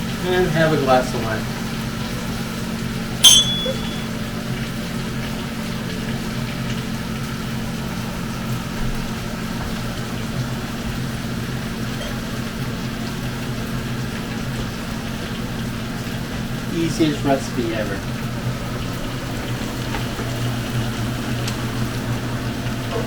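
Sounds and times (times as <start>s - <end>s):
low mechanical hum: 0.0s - 23.0s
glass clinking: 3.2s - 4.2s.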